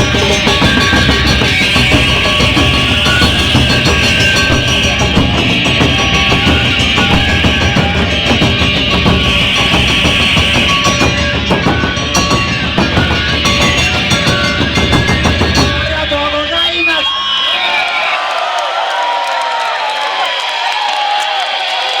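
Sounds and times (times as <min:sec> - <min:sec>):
shamisen: 0:00.0 - 0:16.1
pounding taiko drums: 0:00.0 - 0:16.8
live band music: 0:00.0 - 0:17.2.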